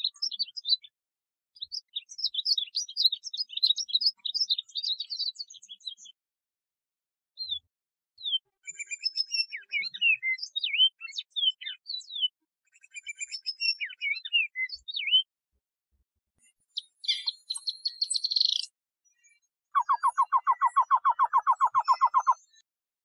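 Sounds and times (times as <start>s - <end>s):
songbird singing: 0.0s - 1.0s, 1.6s - 6.2s, 7.4s - 15.3s, 16.8s - 18.8s, 19.7s - 22.6s.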